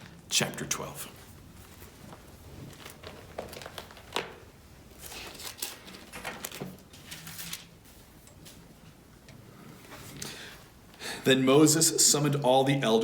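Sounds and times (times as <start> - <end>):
book pages rustling: 1.2 - 8.6.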